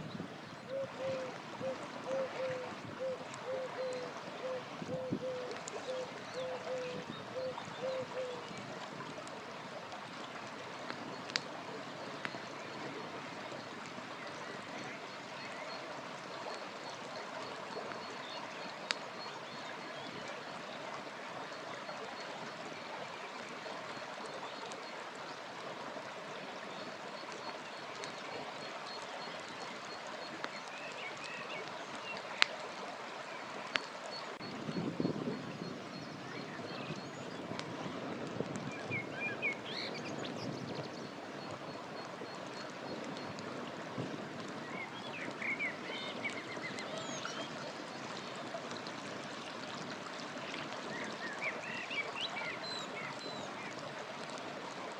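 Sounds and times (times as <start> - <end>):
river water flowing: 0.0 - 54.9
campfire crackling pops: 10.8 - 11.5
birds chirping: 38.8 - 48.5.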